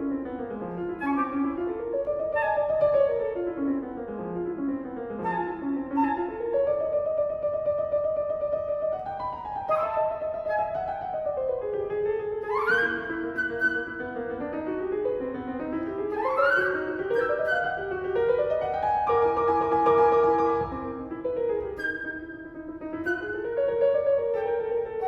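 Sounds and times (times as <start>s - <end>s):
piano: 0.0s - 25.0s
flute: 0.8s - 3.4s, 5.2s - 7.6s, 9.0s - 11.7s, 12.4s - 14.5s, 15.8s - 25.0s.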